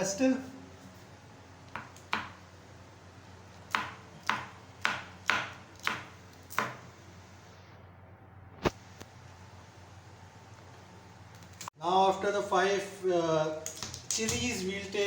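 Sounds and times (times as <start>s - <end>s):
knife chopping on cutting board: 1.8s - 2.4s, 3.7s - 6.8s.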